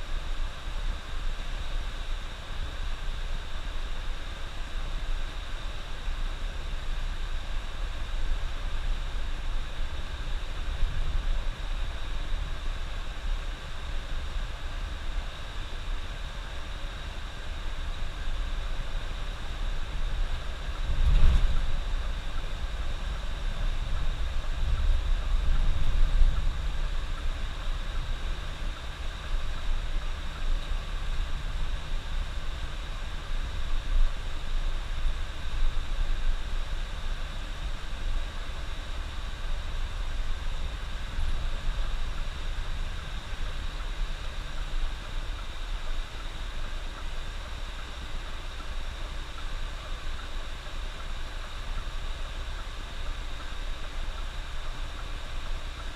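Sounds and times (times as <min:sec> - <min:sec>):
bus engine and tyres rumbling: 0:19.2 - 0:32.8.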